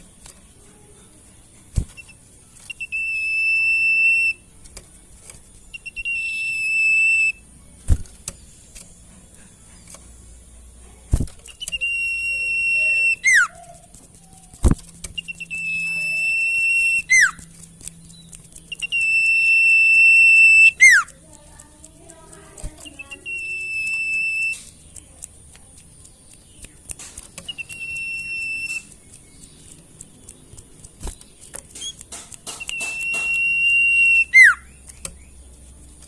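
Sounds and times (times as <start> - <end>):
sharp clicks: 0.0 - 0.8, 1.5 - 36.0
bird whistling song: 1.8 - 4.5, 5.6 - 7.4, 11.4 - 21.1, 22.8 - 24.8, 26.3 - 29.7, 31.0 - 35.4.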